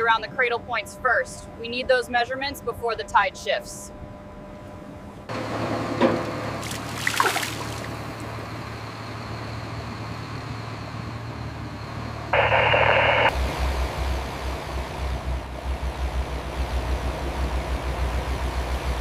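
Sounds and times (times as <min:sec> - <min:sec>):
low machine hum: 0:00.0 - 0:19.0
pulsing engine rumble: 0:04.0 - 0:19.0.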